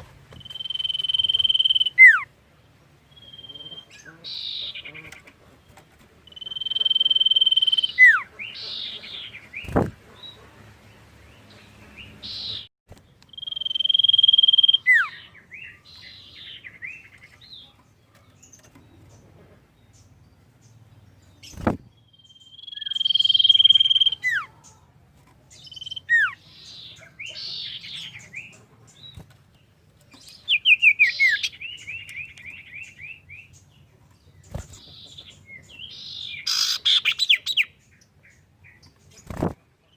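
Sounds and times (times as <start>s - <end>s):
bird singing whistled phrases: 0.4s - 2.3s, 6.3s - 8.2s, 22.2s - 24.5s.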